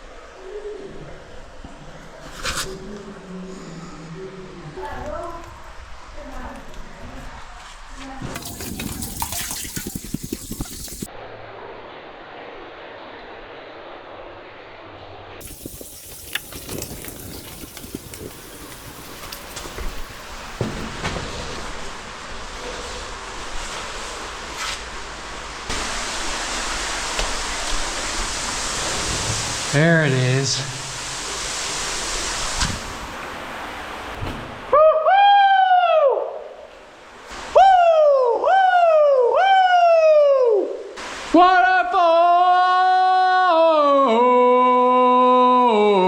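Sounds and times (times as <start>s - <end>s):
waterfall rushing in a cave: 15.4s - 21.0s, 21.8s - 34.8s
person singing long notes: 41.7s - 46.0s.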